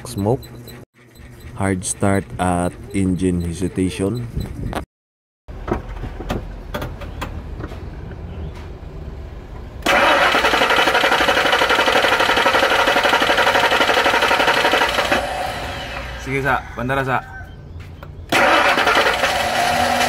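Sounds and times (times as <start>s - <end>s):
engine cranking: 9.8s - 16.3s, 18.3s - 20.0s.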